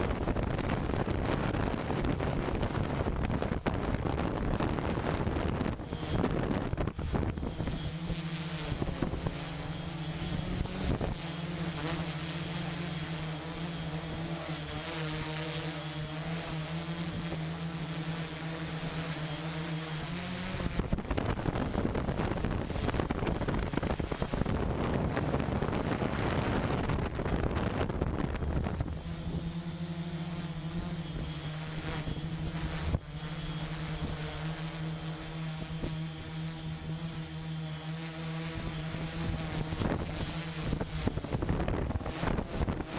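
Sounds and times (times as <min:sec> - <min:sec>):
machine engine humming: 0:00.0 - 0:42.9.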